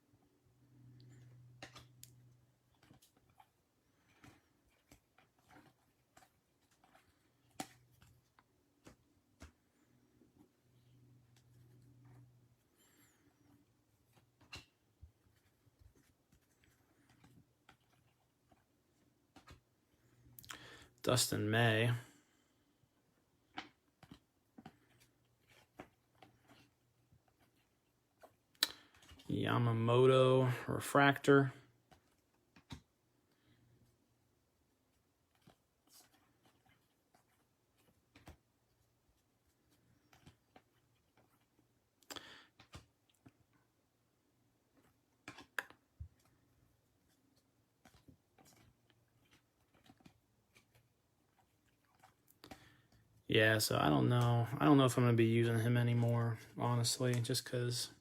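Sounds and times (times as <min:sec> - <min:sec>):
trading cards rustling: 0:01.1 - 0:20.9.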